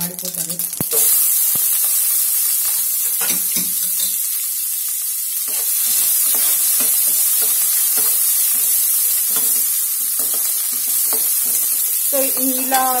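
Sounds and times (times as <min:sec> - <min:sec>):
onions frying in oil: 0:00.0 - 0:13.0.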